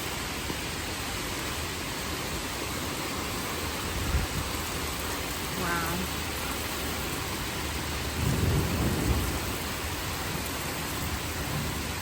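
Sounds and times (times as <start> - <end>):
heavy rain pouring: 0.0 - 12.0
low rumble of thunder: 7.4 - 12.0.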